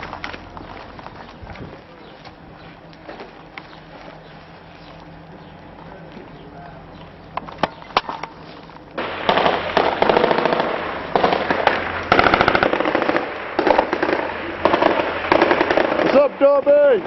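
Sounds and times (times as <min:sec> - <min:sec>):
thermite burning with crackling pops: 0:07.0 - 0:17.0
sharp cracks: 0:07.3 - 0:17.0.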